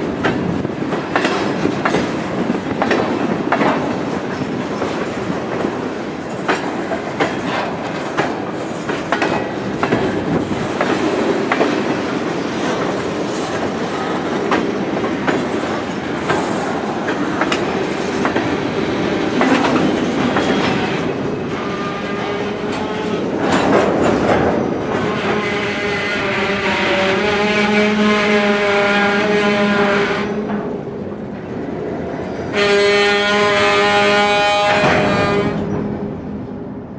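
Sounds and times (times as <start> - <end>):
train wheels clicking over rail joints: 0.0 - 25.7
train rumble: 0.0 - 36.9.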